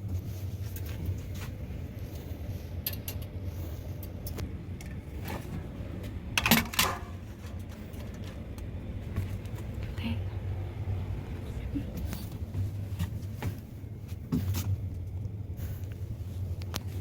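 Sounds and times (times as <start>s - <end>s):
low hum: 0.0s - 17.0s
objects clattering: 6.4s - 8.5s.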